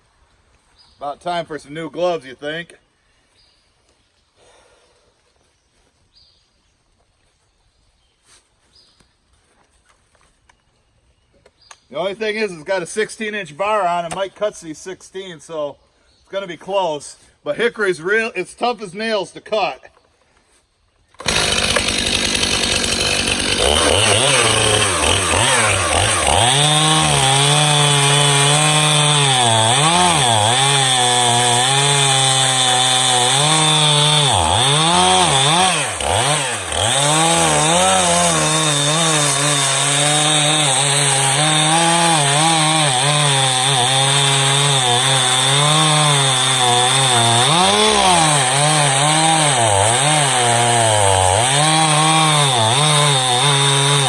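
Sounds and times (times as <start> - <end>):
chainsaw cutting wood: 21.1 - 54.0.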